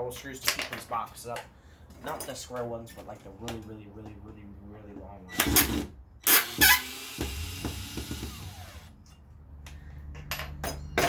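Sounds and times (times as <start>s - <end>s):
cordless drill running: 5.4s - 9.0s.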